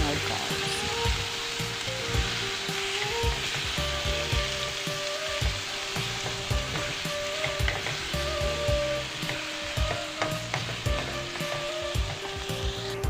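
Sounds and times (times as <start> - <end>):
meat sizzling in oil: 0.0 - 13.0
spoon knocking and scraping pan: 6.0 - 12.8.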